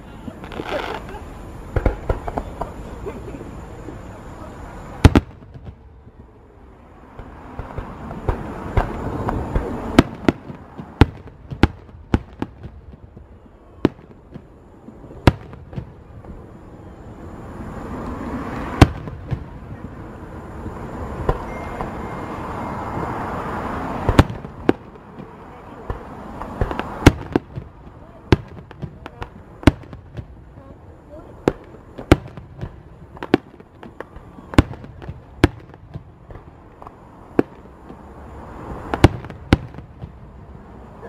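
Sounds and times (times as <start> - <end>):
fireworks hissing wash: 0.0 - 41.0
firework shells bursting: 24.0 - 30.6.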